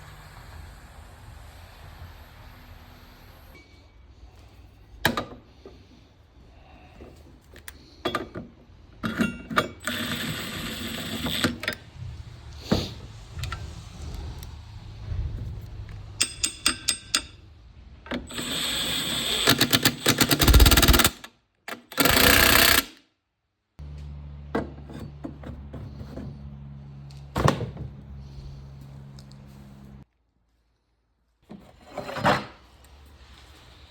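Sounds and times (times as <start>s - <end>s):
power tool bursts: 9.8s - 11.6s, 18.3s - 23.0s
clicks and clanks: 16.2s - 17.4s.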